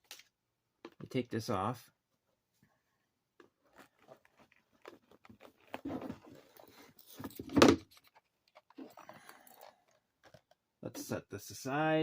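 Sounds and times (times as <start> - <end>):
packaging rustling and clicking: 3.4 - 10.7.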